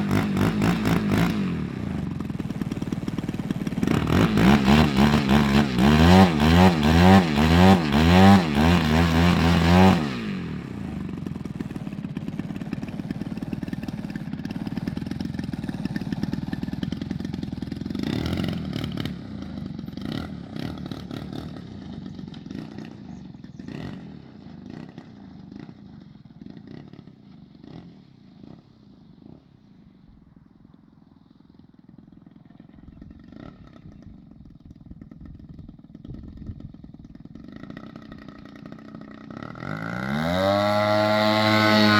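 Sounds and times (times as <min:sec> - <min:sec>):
model aircraft engine running: 0:00.0 - 0:29.8, 0:30.7 - 0:41.9
quieter engine drone: 0:00.0 - 0:41.9.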